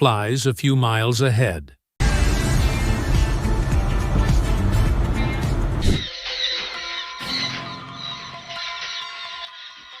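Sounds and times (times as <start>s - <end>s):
car driving rumble: 2.0s - 6.0s
background music: 2.0s - 10.0s.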